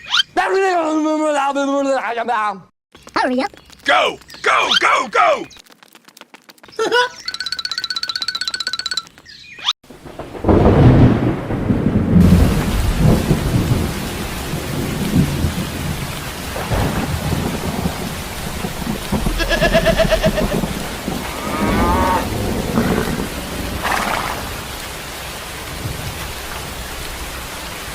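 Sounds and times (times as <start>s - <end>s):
steady rain: 3.0s - 7.5s, 9.9s - 27.9s
thunder rumbling: 9.9s - 27.9s
cow mooing: 21.2s - 23.5s.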